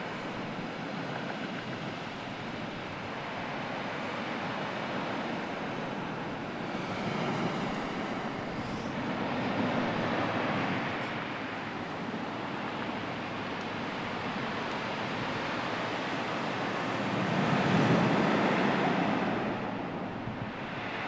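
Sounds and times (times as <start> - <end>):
sea waves washing on shore: 0.0 - 21.0.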